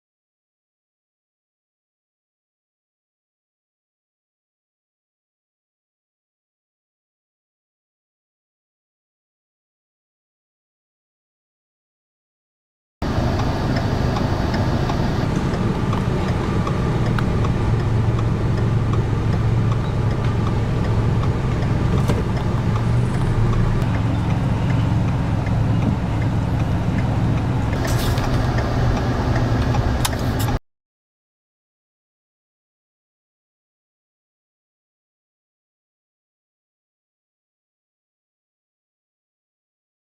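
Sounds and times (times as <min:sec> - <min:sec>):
vehicle engine and road noise: 0:13.0 - 0:30.6.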